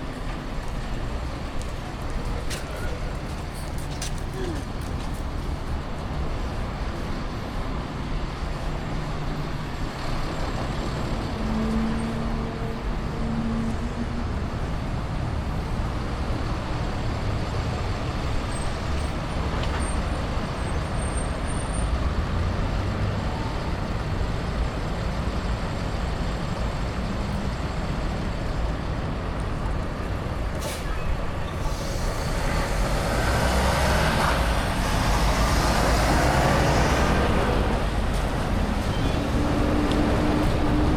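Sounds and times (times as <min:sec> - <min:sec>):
street traffic rumble: 0:00.0 - 0:40.9
vehicle passing close: 0:31.6 - 0:40.9.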